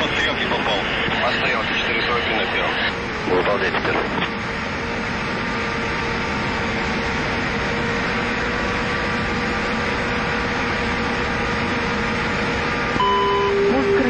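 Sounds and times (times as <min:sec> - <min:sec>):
jet engine running with whine: 0:00.0 - 0:14.0.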